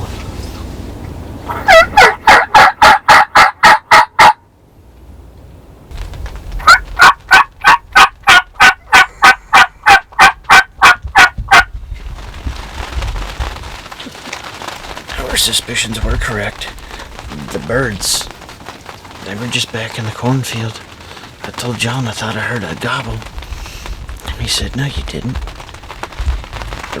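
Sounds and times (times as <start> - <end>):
turkey yelping: 1.5 - 4.4, 6.6 - 11.7.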